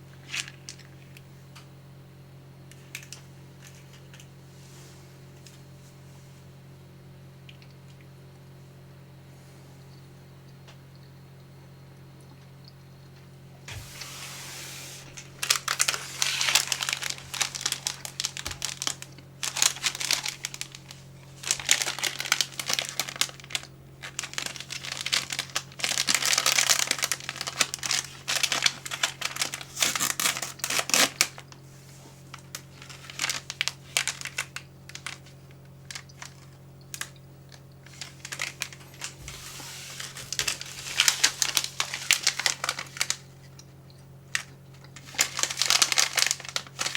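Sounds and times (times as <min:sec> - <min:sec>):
plastic packaging crinkling: 0:13.7 - 0:31.6, 0:32.2 - 0:43.6, 0:44.3 - 0:46.9.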